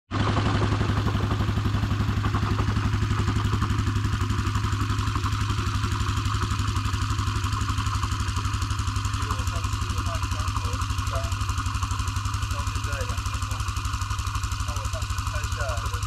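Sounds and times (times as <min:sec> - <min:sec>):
scooter engine idling: 0:00.1 - 0:16.0.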